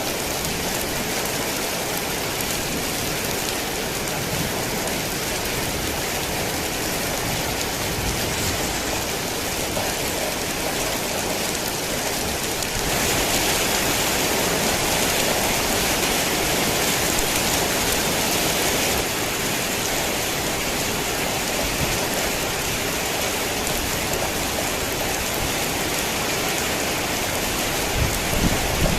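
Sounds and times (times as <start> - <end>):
heavy rain hissing: 0.0 - 28.9.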